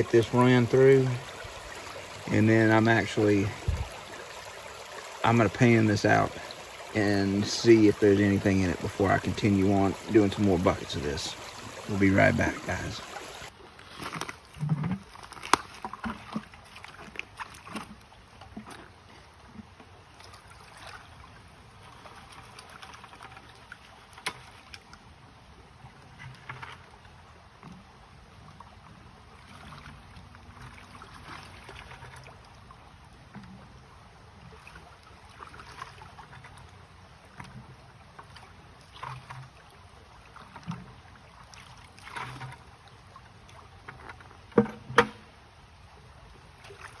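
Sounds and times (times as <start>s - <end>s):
flowing water rushing: 0.0s - 13.6s
water sloshing and splashing: 0.0s - 25.0s, 25.8s - 47.0s.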